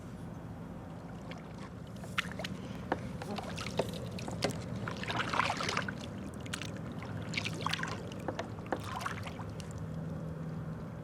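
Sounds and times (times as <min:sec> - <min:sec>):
low steady hum: 0:00.0 - 0:11.0
water splashing against kayak: 0:01.0 - 0:09.8.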